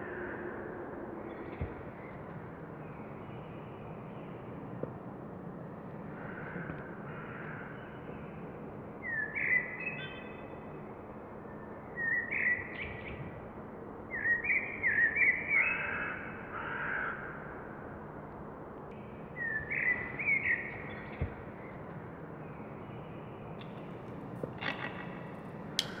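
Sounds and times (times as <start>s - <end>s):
birds calling: 23.6s - 26.0s.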